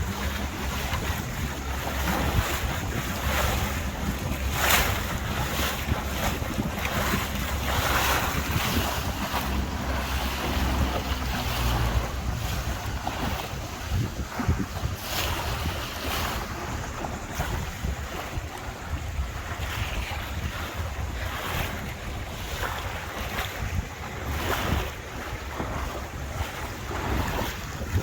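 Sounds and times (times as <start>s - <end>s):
boat engine running: 0.0s - 28.0s
water rushing past hull: 0.0s - 28.0s
water splashes: 0.0s - 28.0s
wind buffeting microphone: 0.0s - 28.0s.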